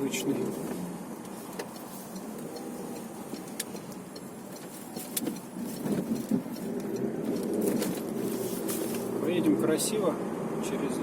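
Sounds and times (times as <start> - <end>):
car engine and road noise: 0.0 - 11.0
sharp clicks: 1.6 - 7.6.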